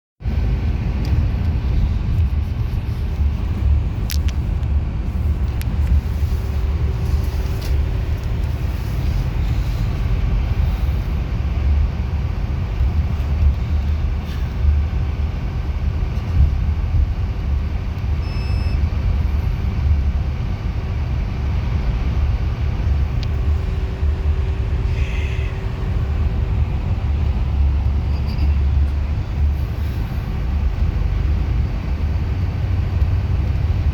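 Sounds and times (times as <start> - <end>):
bus engine and road rumble: 0.2 - 33.9
short beep: 18.2 - 18.8
faint steady hum: 22.1 - 31.0.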